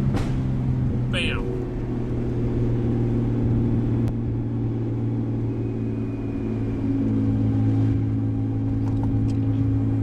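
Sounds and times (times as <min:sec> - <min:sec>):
car engine droning: 0:00.0 - 0:10.0.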